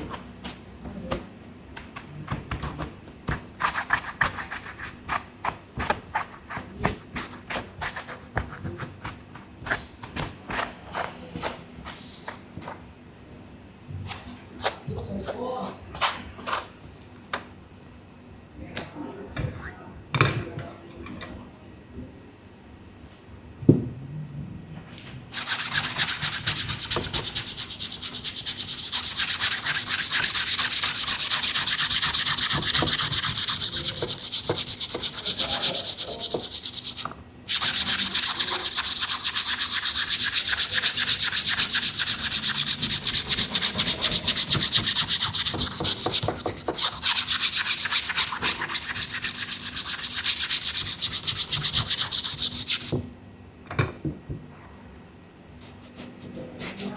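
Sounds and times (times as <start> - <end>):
scrubbing on a sneaker: 25.3 - 52.9.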